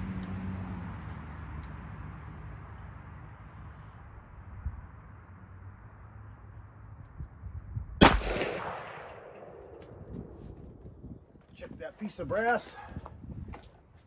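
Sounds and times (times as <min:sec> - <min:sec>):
rifle shot: 0:08.0 - 0:10.8.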